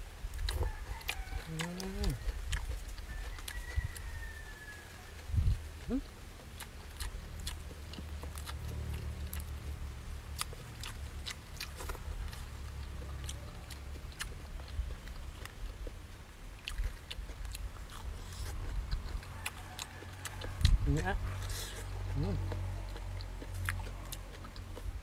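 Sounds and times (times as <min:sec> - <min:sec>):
low steady rumble: 0:00.0 - 0:25.0
man chewing with wet smacks: 0:00.0 - 0:25.0.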